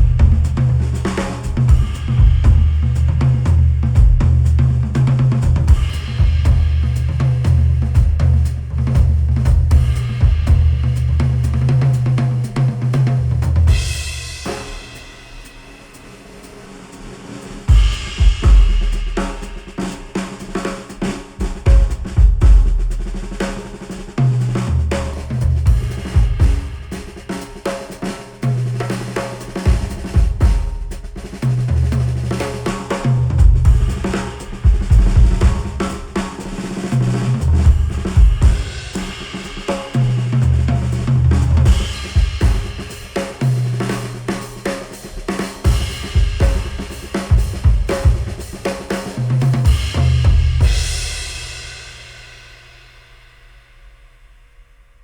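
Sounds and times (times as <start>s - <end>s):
bass line: 0.0s - 11.8s, 33.1s - 35.8s, 37.4s - 38.8s
busy drum kit: 0.0s - 54.5s.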